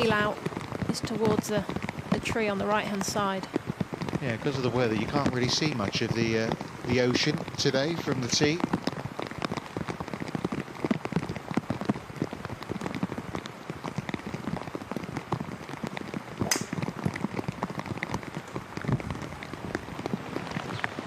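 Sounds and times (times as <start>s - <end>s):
heavy rain pattering: 0.0s - 21.0s
sharp loud crack: 16.4s - 16.8s.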